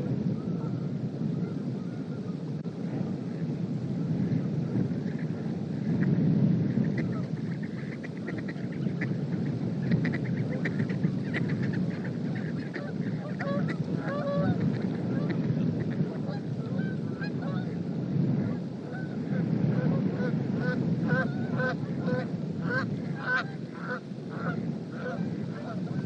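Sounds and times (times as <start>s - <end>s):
wind buffeting microphone: 0.0s - 26.0s
flock of birds calling: 6.7s - 17.8s, 20.2s - 26.0s.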